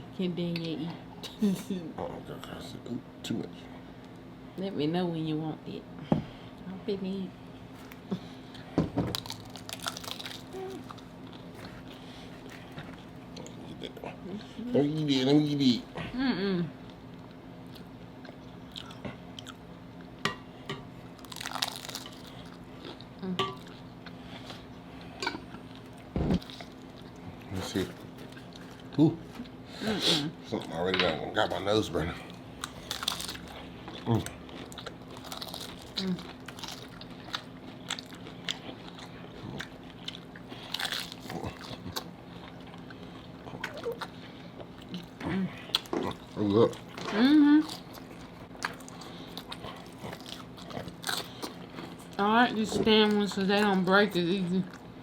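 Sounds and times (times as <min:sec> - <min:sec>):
crunching taco shells: 0:07.7 - 0:13.6, 0:21.2 - 0:23.1, 0:32.4 - 0:52.2
chewing close to microphone: 0:32.2 - 0:52.2.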